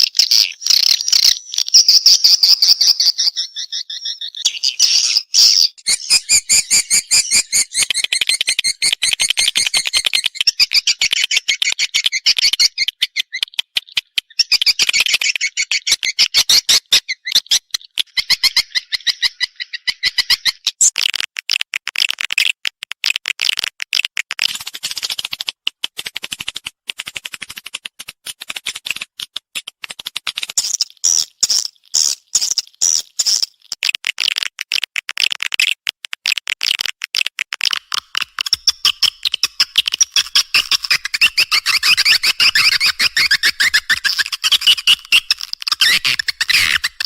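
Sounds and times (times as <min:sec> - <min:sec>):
swiftlet chirps and clicks: 0:05.7 - 0:21.1, 0:37.6 - 0:47.0.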